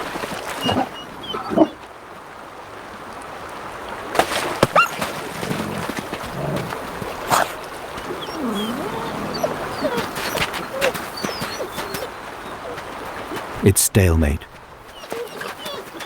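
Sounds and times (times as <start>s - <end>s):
splashes of shallow water: 0.0s - 13.6s, 14.5s - 16.0s
wolves whining and yelping: 0.4s - 1.8s, 4.7s - 5.2s, 6.1s - 13.5s, 14.8s - 16.0s.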